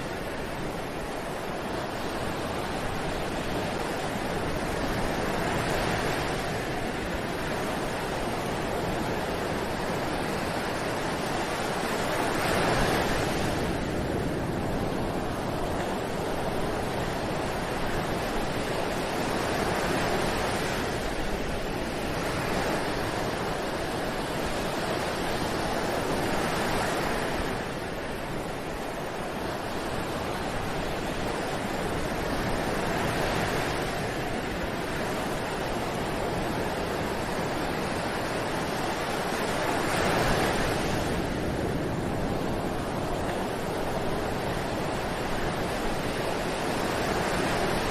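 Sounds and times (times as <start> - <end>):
ocean waves breaking: 0.0 - 47.9.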